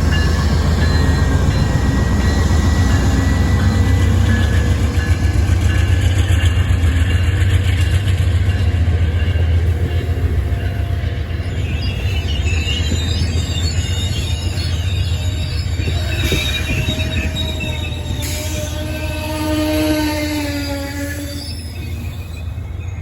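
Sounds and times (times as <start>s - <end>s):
train rumbling past: 0.0s - 23.0s
train wheels squealing on rail: 0.0s - 23.0s.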